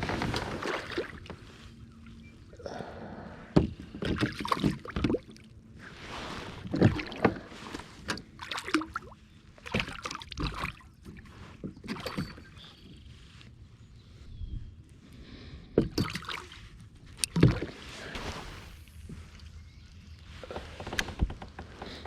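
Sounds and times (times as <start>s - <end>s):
knocks and clatter on kayak: 3.6s - 5.3s, 20.4s - 22.0s.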